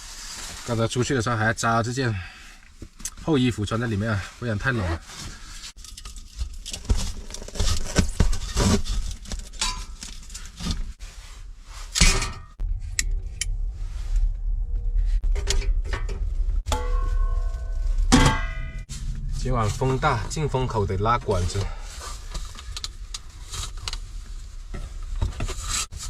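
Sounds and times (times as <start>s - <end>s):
low wind rumble: 10.4s - 25.1s.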